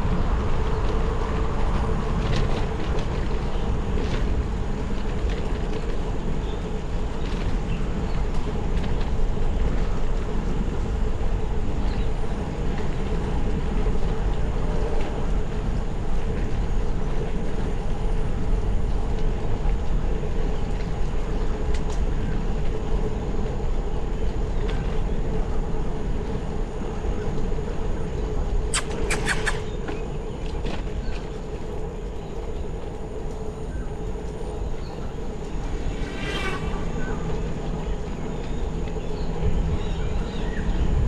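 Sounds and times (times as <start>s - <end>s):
wind and road noise: 0.0s - 41.0s
sharp clicks: 28.7s - 29.8s.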